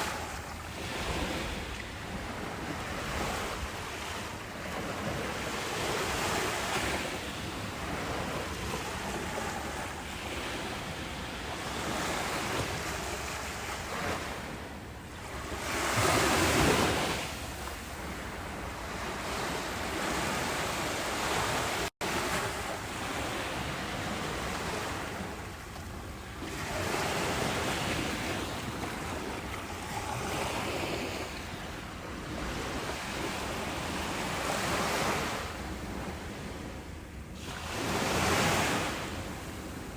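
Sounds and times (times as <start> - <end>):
ocean waves washing in: 0.0 - 39.9.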